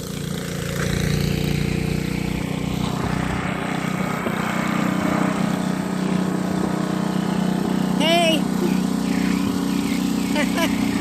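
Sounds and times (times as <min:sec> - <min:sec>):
snowblower engine running: 0:00.0 - 0:11.0.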